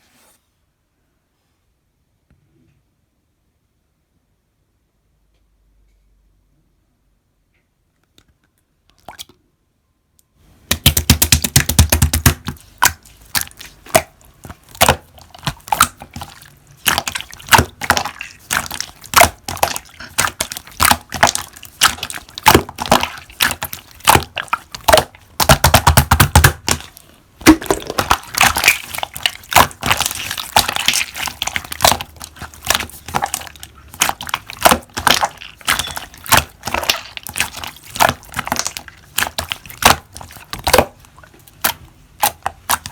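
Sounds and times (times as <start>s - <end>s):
slime crackling and popping: 10.7s - 42.9s.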